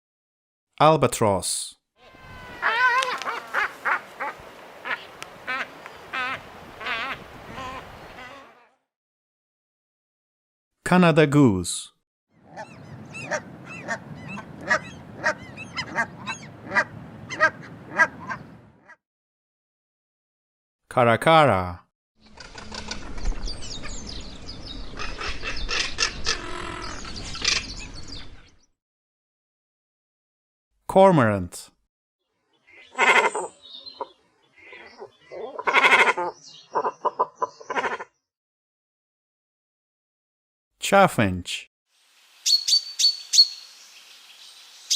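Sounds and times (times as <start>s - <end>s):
geese honking: 2.0s - 8.6s, 12.5s - 18.4s
cormorant calling: 2.0s - 8.7s, 12.4s - 19.0s, 24.9s - 27.8s, 32.5s - 38.2s.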